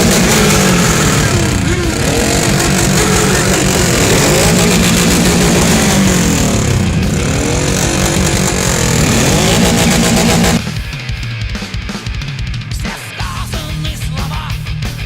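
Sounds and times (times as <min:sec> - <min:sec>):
motorcycle engines revving: 0:00.0 - 0:10.6.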